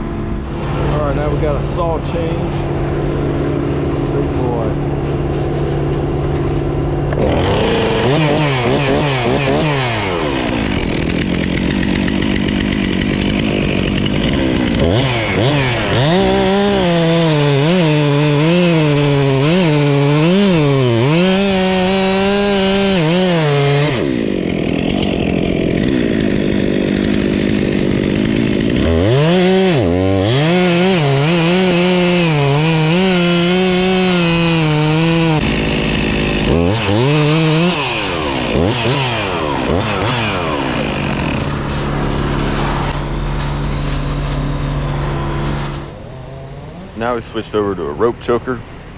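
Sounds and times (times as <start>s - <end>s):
chainsaw revving and cutting wood: 0.0s - 48.9s.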